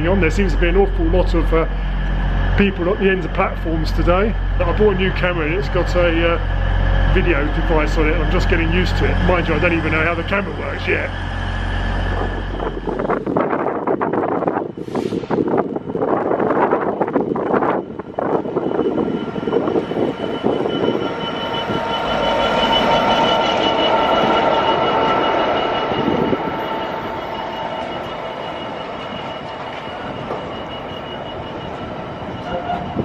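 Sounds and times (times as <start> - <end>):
train mechanical whine: 0.0 - 33.0
wind gusts on microphone: 10.2 - 27.2, 29.4 - 33.0.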